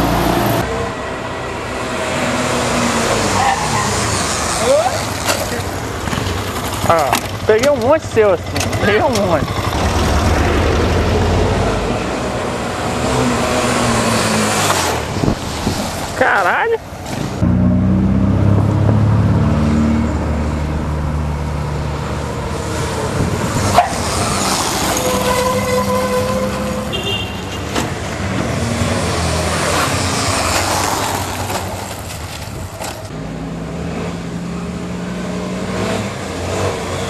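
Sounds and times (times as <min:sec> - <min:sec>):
motorcycle engine revving: 0:02.0 - 0:16.0, 0:17.1 - 0:27.4.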